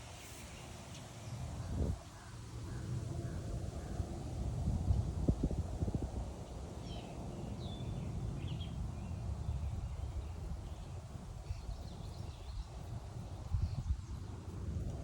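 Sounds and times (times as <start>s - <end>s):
low rumble of outdoor noise: 0.0s - 15.0s
songbirds chirping: 6.3s - 14.7s.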